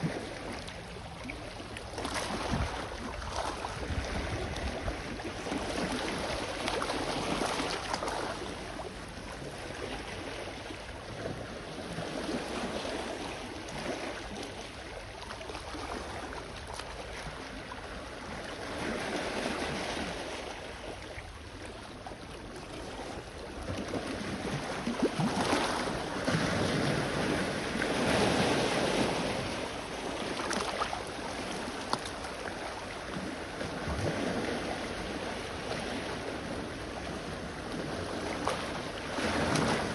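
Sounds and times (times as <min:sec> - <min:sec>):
sea waves washing onto shore: 0:23.8 - 0:39.9.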